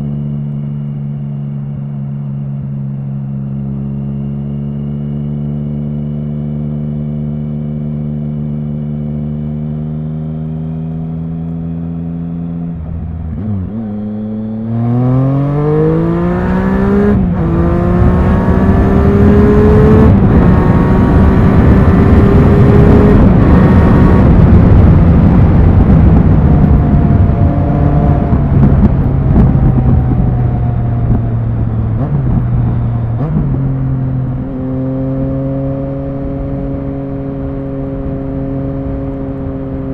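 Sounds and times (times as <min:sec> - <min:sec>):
motorcycle engine revving: 0:00.0 - 0:39.9
rushing wind noise: 0:12.8 - 0:39.9.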